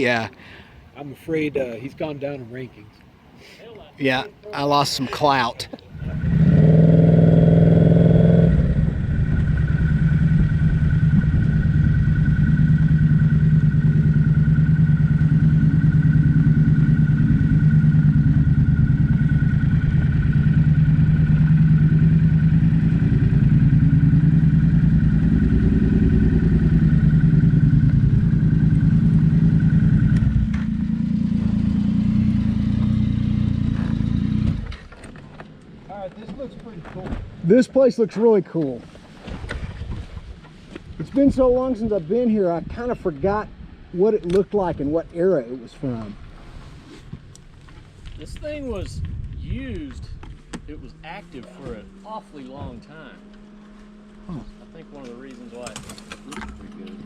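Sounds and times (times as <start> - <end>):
wind and road noise: 0.0 - 57.0
motorcycle engine running: 5.9 - 35.2, 49.6 - 57.0.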